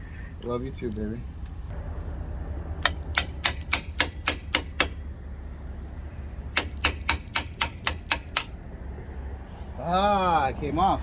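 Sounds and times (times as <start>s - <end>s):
low hum: 1.3s - 6.8s
hammer striking steel: 2.8s - 5.0s, 6.5s - 8.6s.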